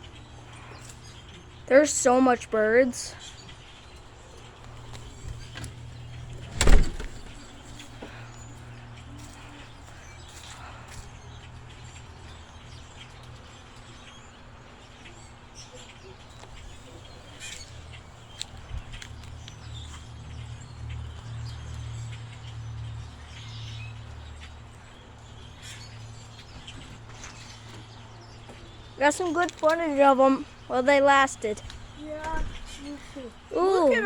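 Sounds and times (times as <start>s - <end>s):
flock of birds chirping: 0.0s - 34.0s.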